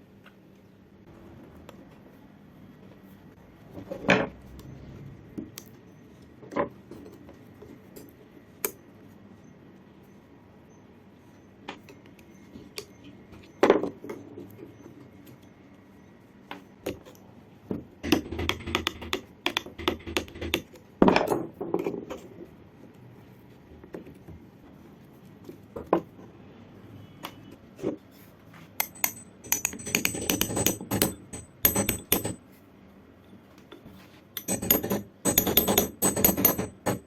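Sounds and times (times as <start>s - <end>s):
metal tools knocking on work surface: 28.8s - 32.4s, 34.4s - 37.0s.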